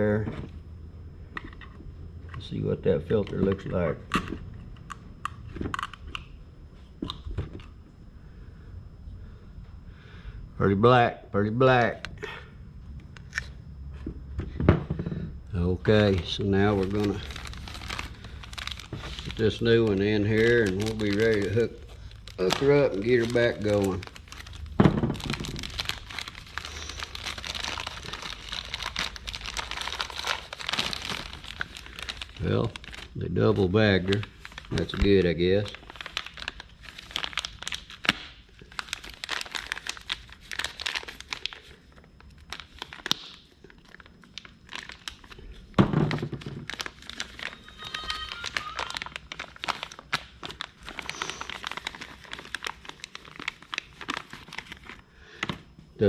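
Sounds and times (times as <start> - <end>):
plastic bag crinkling: 15.9 - 55.0.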